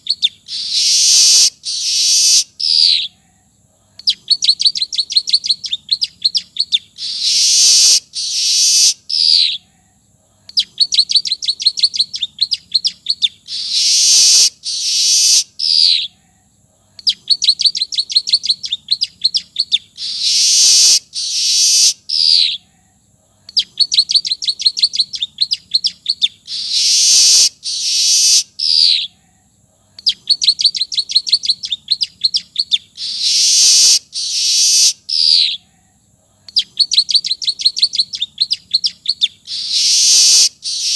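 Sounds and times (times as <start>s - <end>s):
bird song with wheezy notes: 36.6s - 40.9s.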